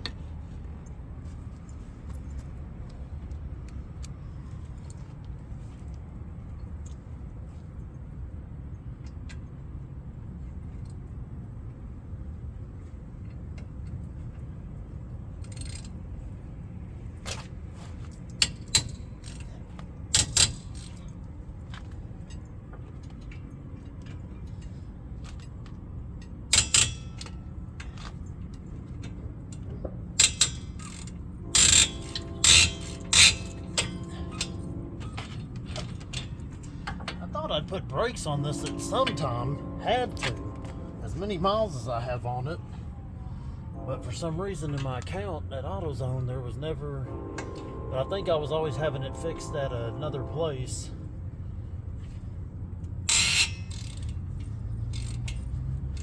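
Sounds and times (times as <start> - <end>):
steady low hum: 0.0 - 55.4
metal tools clinking and clanking: 26.5 - 37.3.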